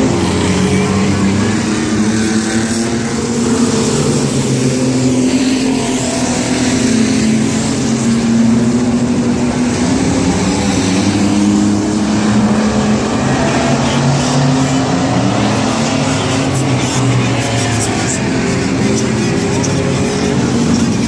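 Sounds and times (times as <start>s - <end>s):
race truck engines running hard: 0.0s - 21.0s.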